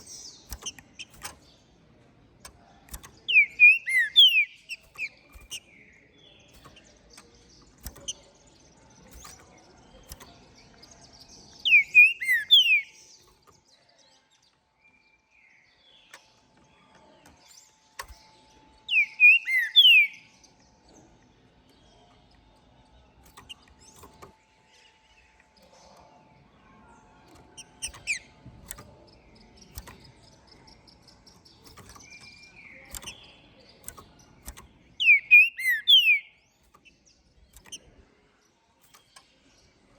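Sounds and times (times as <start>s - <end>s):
faint soft bird notes: 0.0s - 39.9s
bird whistling song: 2.9s - 8.3s, 11.5s - 13.4s, 18.8s - 20.5s, 27.6s - 28.8s, 31.4s - 37.8s.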